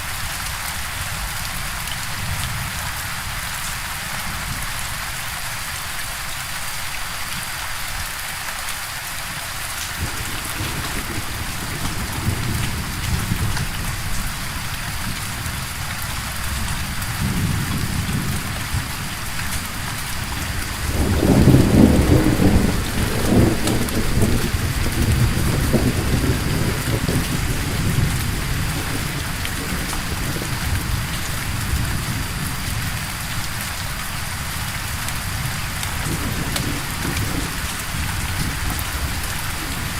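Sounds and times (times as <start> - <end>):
steady rain: 0.0 - 39.9
rolling thunder: 10.0 - 33.6, 35.0 - 39.9.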